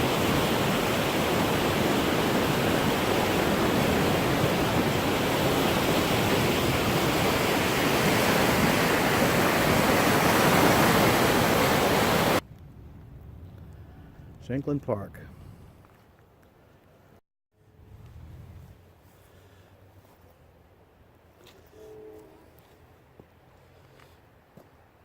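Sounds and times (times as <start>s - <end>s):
floodwater rushing: 0.0s - 12.4s.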